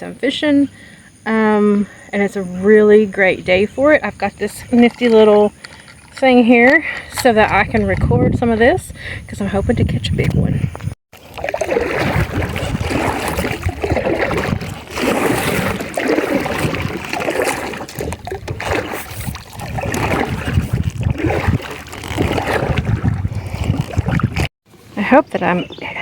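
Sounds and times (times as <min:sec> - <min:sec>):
kayak paddle strokes in water: 0:03.6 - 0:08.8, 0:11.1 - 0:24.9
low rumble: 0:07.1 - 0:11.0.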